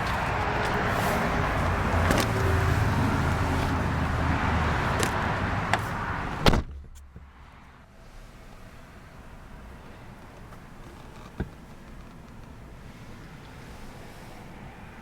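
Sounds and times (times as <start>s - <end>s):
outdoor rumble and hiss: 0.0s - 15.0s
car door shutting: 4.9s - 7.3s, 9.9s - 12.6s.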